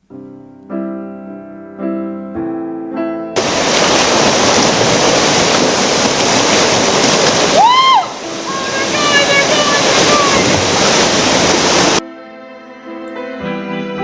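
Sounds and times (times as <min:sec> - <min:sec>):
piano chords: 0:00.0 - 0:14.0
whitewater rapids rushing: 0:03.4 - 0:12.0.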